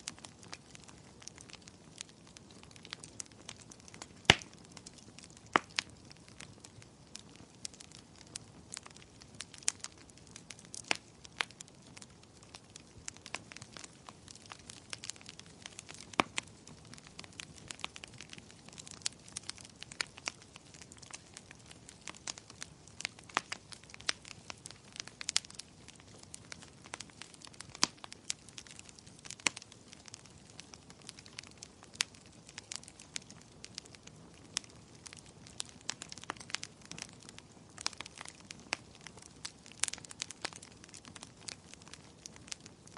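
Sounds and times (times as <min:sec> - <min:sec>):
wood fire crackling and popping: 0:00.0 - 0:42.9.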